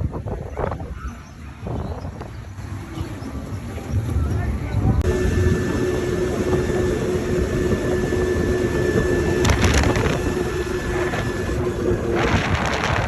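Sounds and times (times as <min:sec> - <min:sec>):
low rumbling noise: 0:05.0 - 0:12.7
engine-like hum: 0:05.0 - 0:13.0.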